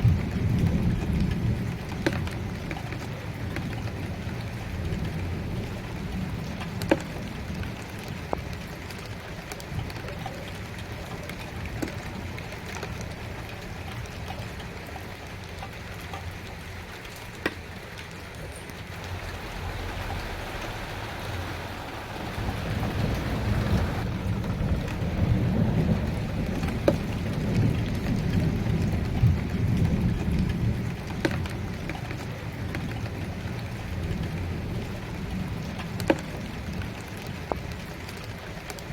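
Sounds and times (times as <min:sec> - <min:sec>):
thunder rumbling: 0:00.0 - 0:07.9, 0:18.9 - 0:37.2
raindrops tapping a surface: 0:00.0 - 0:38.9
steady rain falling: 0:00.0 - 0:38.9.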